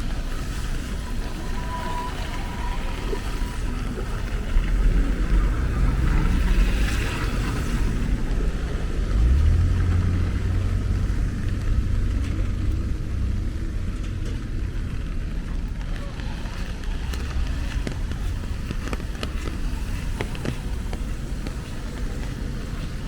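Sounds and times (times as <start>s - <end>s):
tyre hiss on wet road: 0.0s - 11.1s, 16.4s - 23.0s
vehicle engine rumble: 0.0s - 23.0s.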